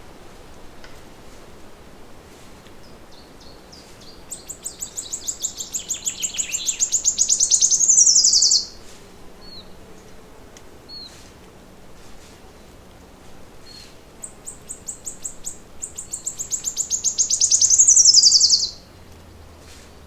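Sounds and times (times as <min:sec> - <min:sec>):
faint bird chirps: 0:03.1 - 0:08.8, 0:13.6 - 0:18.9
songbird trilling: 0:03.1 - 0:08.8, 0:13.6 - 0:18.9.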